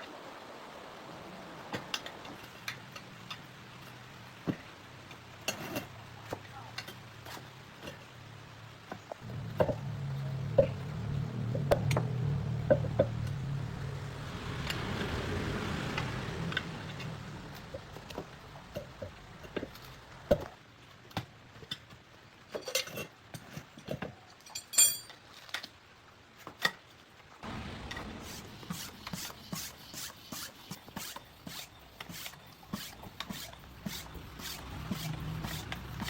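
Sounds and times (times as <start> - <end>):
hand tools clicking and scraping: 1.7 - 8.2, 15.9 - 25.8, 27.8 - 36.0.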